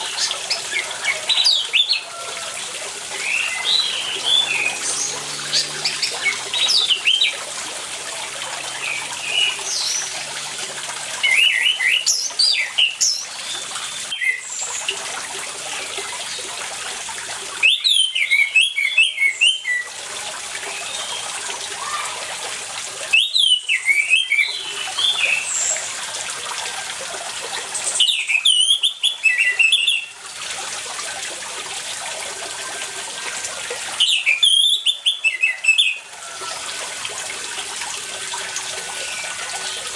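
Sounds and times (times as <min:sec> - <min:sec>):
running water: 0:00.0 - 0:39.9
thrush singing whistled phrases: 0:23.1 - 0:25.5.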